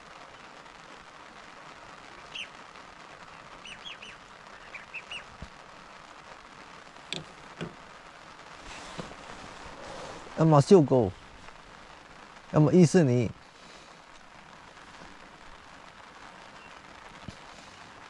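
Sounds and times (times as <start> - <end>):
light rain hiss: 0.0 - 18.0
bird chirping: 3.6 - 5.3.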